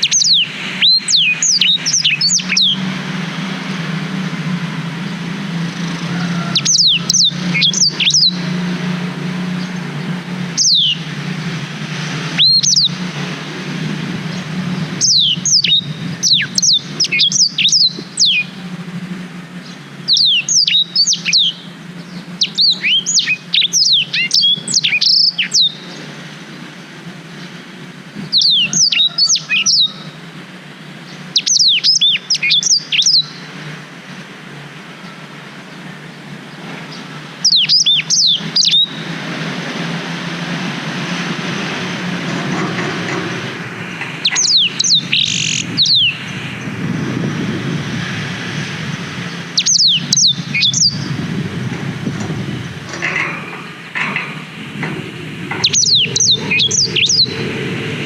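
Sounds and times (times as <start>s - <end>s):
bird singing whistled notes: 0.0s - 2.9s, 5.0s - 8.6s, 9.4s - 11.1s, 12.3s - 13.0s, 14.3s - 18.6s, 19.6s - 26.0s, 28.2s - 30.2s, 31.1s - 33.5s, 36.9s - 39.1s, 44.2s - 46.4s, 49.3s - 51.2s, 55.5s - 57.4s
low rumble: 41.0s - 58.0s.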